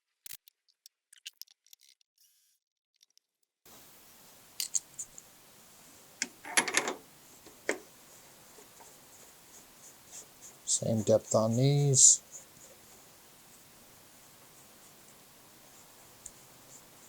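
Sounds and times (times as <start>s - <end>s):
metal parts rattling: 6.4s - 7.0s
metal tools clinking: 6.4s - 7.0s.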